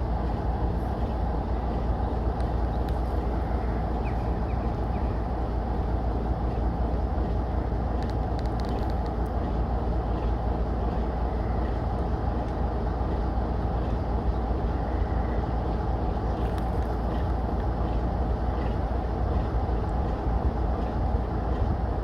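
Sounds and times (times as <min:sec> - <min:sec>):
diesel train rumbling: 0:00.0 - 0:22.0
faint clicks: 0:08.0 - 0:09.4.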